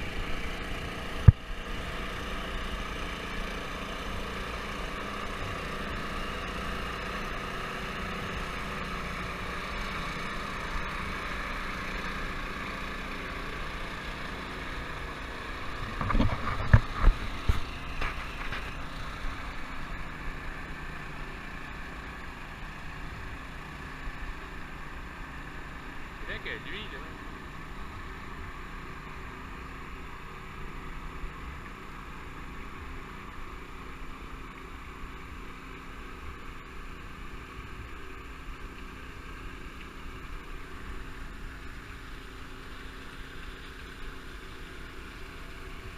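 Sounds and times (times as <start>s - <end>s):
engine droning: 0.0s - 45.9s
knocks and thumps: 15.8s - 18.7s.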